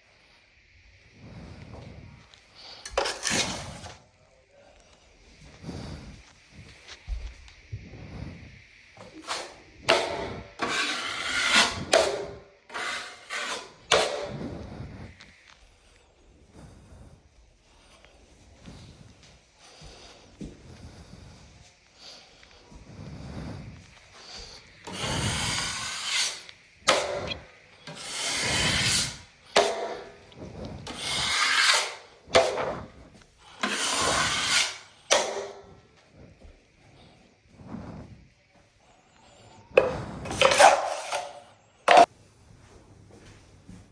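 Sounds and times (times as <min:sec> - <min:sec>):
hand tool scraping drywall: 0:02.8 - 0:04.0, 0:09.0 - 0:15.2, 0:24.1 - 0:35.9, 0:39.8 - 0:42.1.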